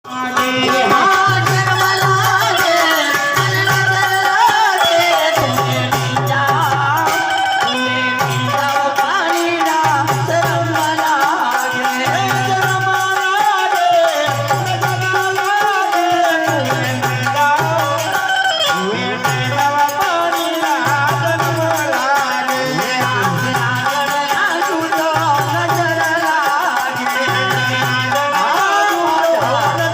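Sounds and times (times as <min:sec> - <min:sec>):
jingling percussion: 0:00.0 - 0:29.9.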